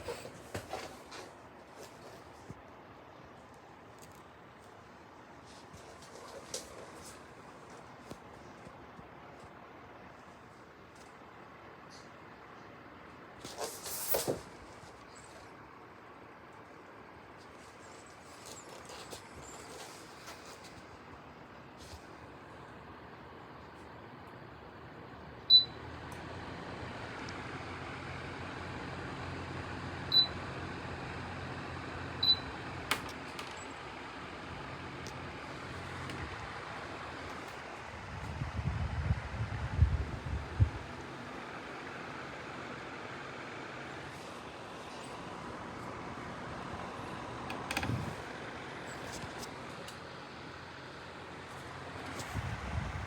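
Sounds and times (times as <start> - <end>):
electric fan whirring: 0.0 - 53.0.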